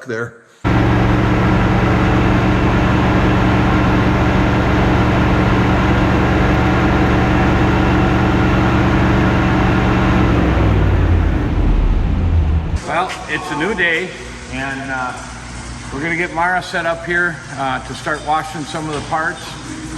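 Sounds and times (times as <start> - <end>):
engine running steadily: 0.7 - 12.8.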